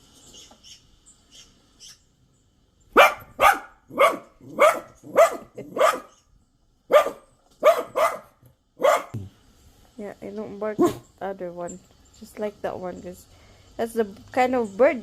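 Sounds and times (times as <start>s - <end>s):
dog barking: 3.0s - 6.2s, 6.9s - 9.2s, 10.8s - 11.0s.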